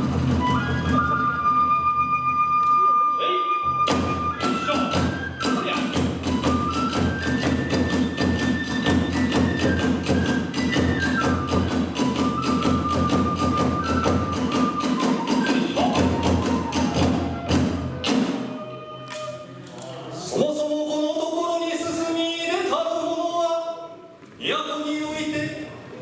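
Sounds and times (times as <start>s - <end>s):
bamboo flute melody: 0.0s - 19.8s
rapid drum beats: 3.9s - 18.5s.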